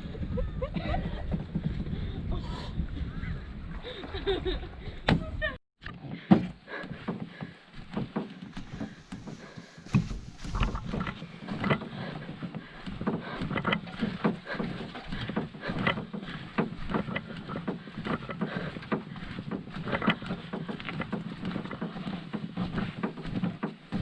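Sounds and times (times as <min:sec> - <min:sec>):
paddle knocks: 0:06.2 - 0:24.0
paddle strokes splashing water: 0:07.0 - 0:24.0.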